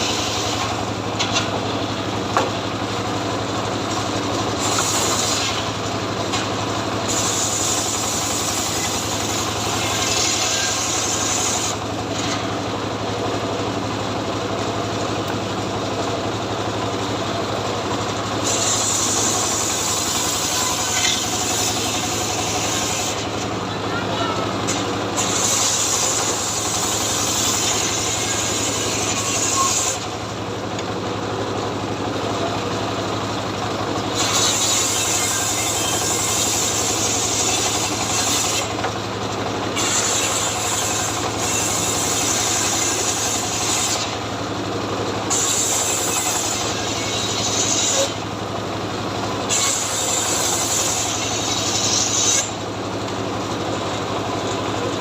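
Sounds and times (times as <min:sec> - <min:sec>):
chainsaw cutting tree: 0:03.8 - 0:12.6, 0:18.0 - 0:23.5, 0:24.6 - 0:30.9, 0:33.9 - 0:44.5, 0:45.2 - 0:48.4, 0:49.1 - 0:53.2.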